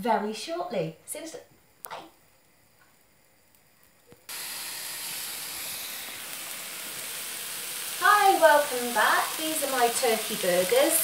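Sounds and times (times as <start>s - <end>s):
burgers sizzling in a pan: 3.2s - 11.0s.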